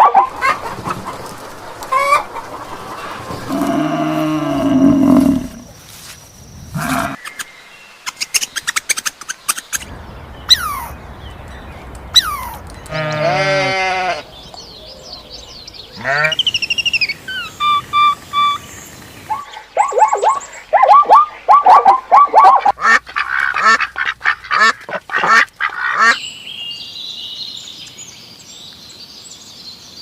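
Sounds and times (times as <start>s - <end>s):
goat bleating: 12.9s - 14.2s.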